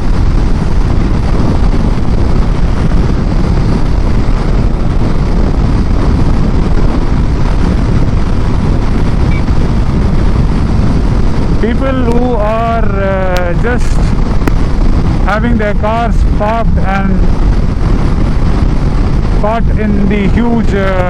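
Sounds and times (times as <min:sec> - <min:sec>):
motorcycle engine running: 0:00.0 - 0:21.0
wind buffeting on microphone: 0:00.0 - 0:21.0.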